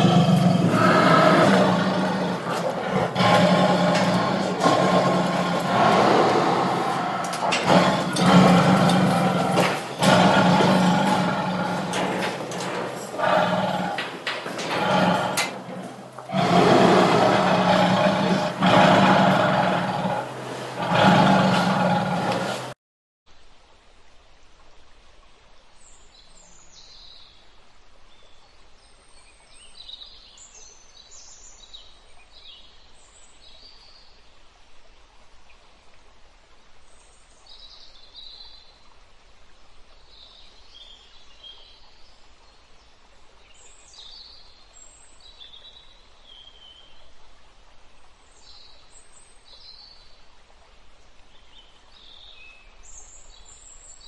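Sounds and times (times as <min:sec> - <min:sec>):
birds chirping: 0:00.0 - 0:22.7
steady background hiss: 0:23.3 - 0:54.0.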